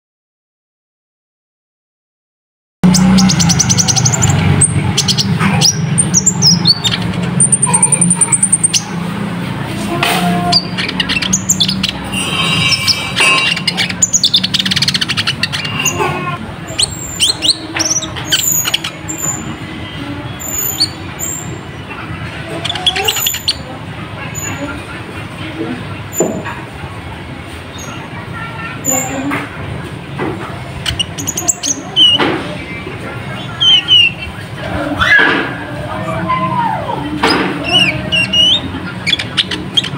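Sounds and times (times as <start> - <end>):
bird singing rapid high chirps: 2.8 - 9.1, 10.4 - 21.9, 22.6 - 23.7, 30.7 - 32.2, 33.3 - 34.5, 37.6 - 39.9.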